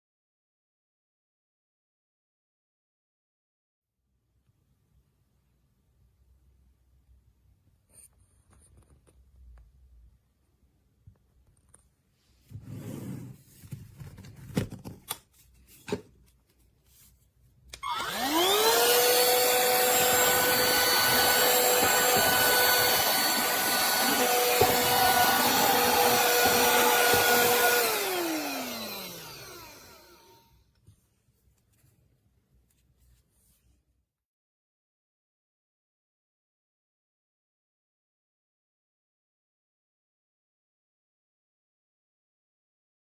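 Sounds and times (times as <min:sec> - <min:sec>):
handheld vacuum motor whine: 0:17.8 - 0:30.5.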